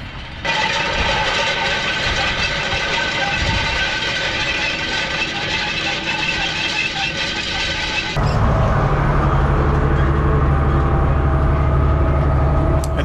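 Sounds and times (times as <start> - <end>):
tractor engine running: 7.9 - 13.0.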